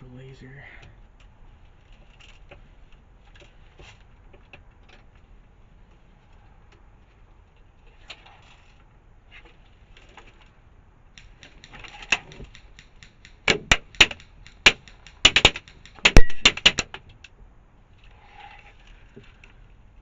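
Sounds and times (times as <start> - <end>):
faint rapid ticks: 11.2 - 16.7
airsoft guns firing: 11.2 - 16.9.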